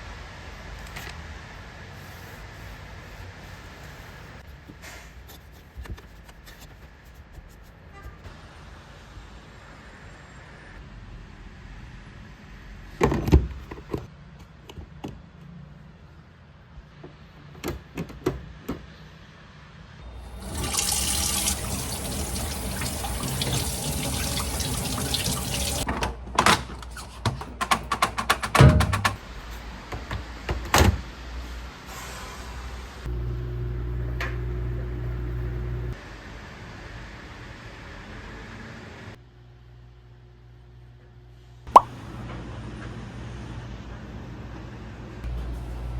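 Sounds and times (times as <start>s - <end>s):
tap water running into sink: 20.2s - 25.9s.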